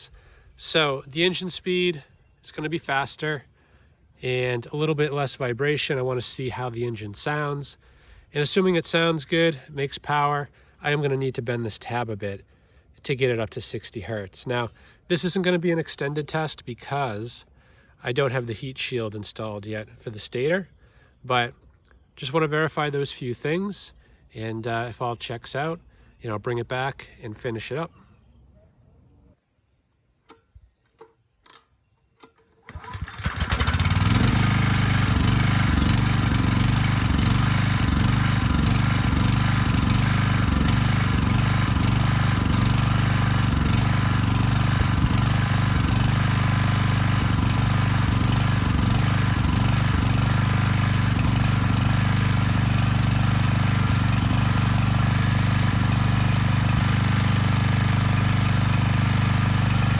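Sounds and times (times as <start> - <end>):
generator engine running: 32.7 - 59.9.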